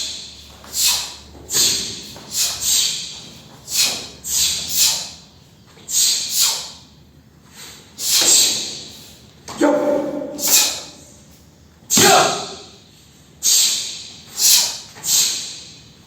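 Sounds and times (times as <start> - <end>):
uniform snapping swishes: 0.0 - 5.2, 6.0 - 6.8, 8.0 - 8.7, 9.8 - 11.2, 14.4 - 15.4
forceful breaths: 0.0 - 5.3, 5.9 - 11.4, 12.0 - 16.0.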